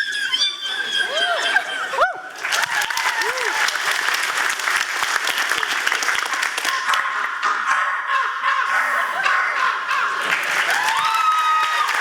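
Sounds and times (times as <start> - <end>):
audience applauding: 2.0 - 7.4, 9.7 - 12.0.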